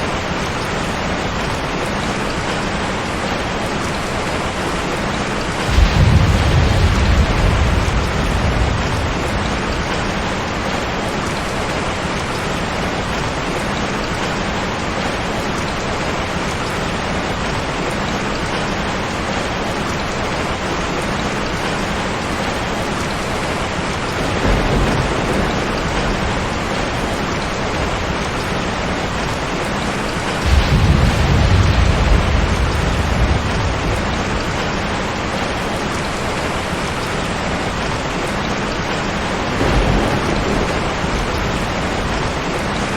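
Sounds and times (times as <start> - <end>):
steady rain: 0.0 - 42.9
thunder rumbling: 3.9 - 13.6, 20.1 - 42.9.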